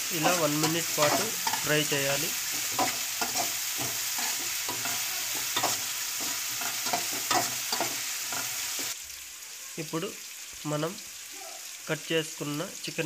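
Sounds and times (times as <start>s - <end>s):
metal spoon scraping a pan: 0.0s - 9.0s
vegetables sizzling in hot oil: 0.0s - 13.0s.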